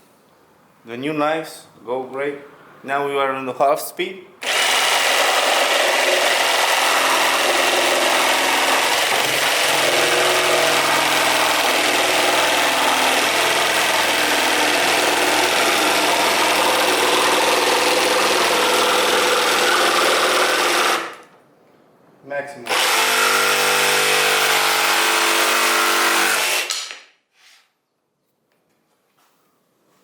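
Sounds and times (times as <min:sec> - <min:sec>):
jigsaw sawing through wood: 0:04.4 - 0:21.3, 0:22.7 - 0:27.0.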